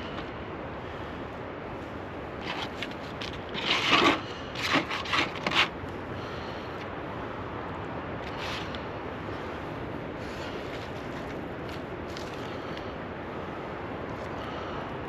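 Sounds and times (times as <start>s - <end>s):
steady background hiss: 0.0s - 15.0s
short scraping and rubbing: 2.4s - 5.8s.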